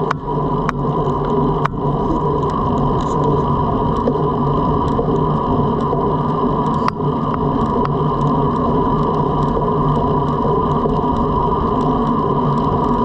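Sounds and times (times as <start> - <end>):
bike tyre noise: 0.0 - 13.0
faint clicks: 4.8 - 13.0.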